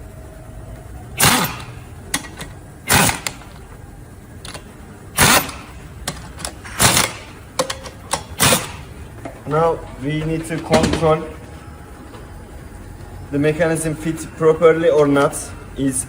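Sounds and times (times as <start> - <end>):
ratchet wrench ratcheting: 1.2 - 3.6, 4.4 - 9.0.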